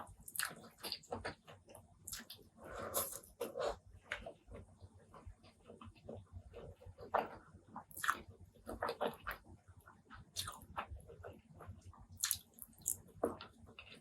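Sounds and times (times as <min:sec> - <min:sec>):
wet chewing and lip smacking: 0:00.1 - 0:03.2, 0:07.0 - 0:09.4, 0:10.1 - 0:14.0.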